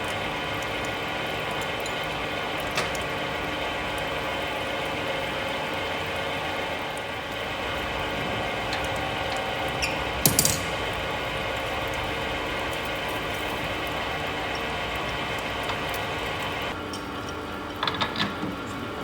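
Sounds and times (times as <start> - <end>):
metal lathe running: 7.4 - 16.8.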